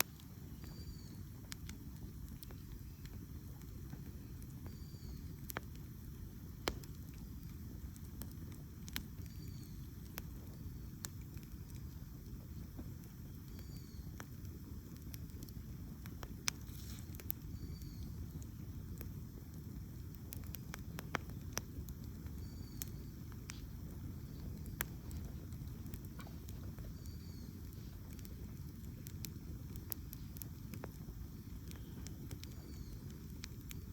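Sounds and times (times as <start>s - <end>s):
campfire crackling and popping: 0.0s - 33.9s
faint high chirps: 0.4s - 1.4s, 4.1s - 5.4s, 9.1s - 10.9s, 13.2s - 14.2s, 17.4s - 18.2s, 22.2s - 25.2s, 26.8s - 28.4s, 31.2s - 33.9s.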